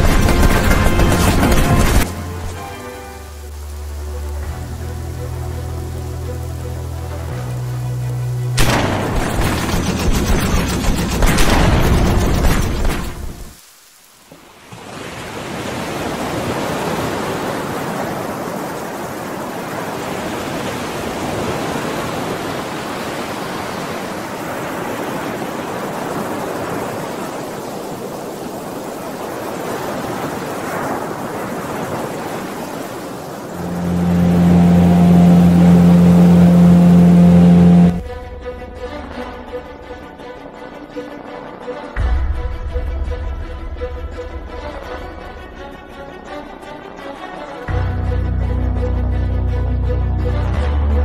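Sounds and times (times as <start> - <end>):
rain: 0.0 - 48.9
surf: 14.3 - 38.1
loud low hum: 33.5 - 38.2.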